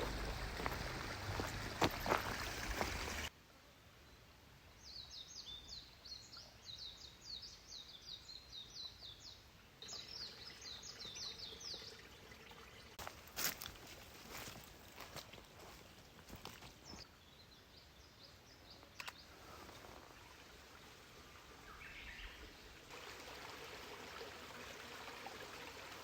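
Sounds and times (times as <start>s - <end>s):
songbird singing: 0.0s - 3.3s, 4.0s - 12.9s, 21.6s - 22.7s.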